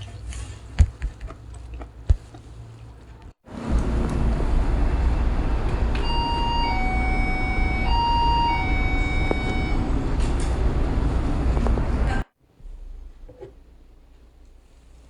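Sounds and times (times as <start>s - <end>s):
vehicle rumble from inside: 2.8s - 12.3s
two-note falling chime: 6.0s - 9.8s.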